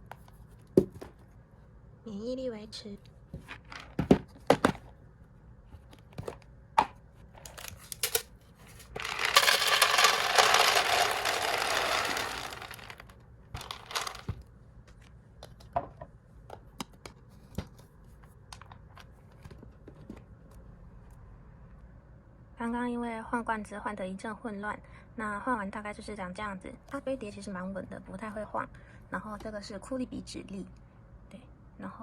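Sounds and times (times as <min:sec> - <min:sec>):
food packets and canisters handled: 0:05.7 - 0:15.8.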